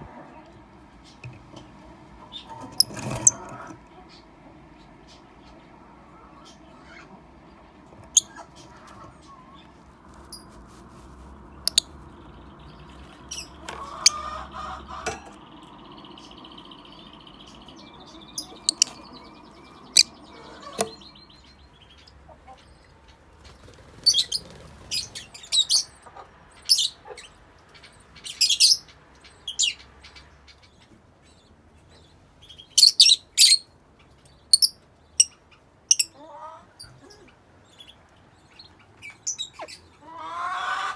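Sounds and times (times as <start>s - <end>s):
lovebirds chirping: 8.0s - 36.2s.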